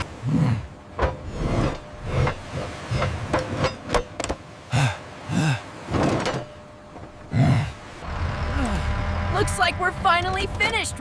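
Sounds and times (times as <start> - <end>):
irregular knocks and clanks: 0.9 - 4.5, 5.8 - 7.4.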